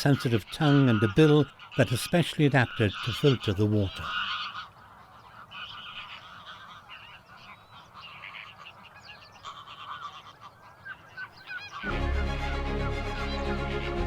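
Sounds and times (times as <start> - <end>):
flamingos honking: 0.1 - 10.6, 11.4 - 14.0.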